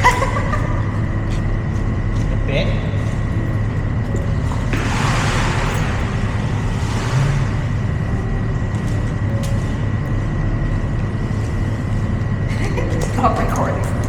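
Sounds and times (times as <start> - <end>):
steady low rumble: 0.0 - 14.0
water spraying onto car: 4.2 - 8.4.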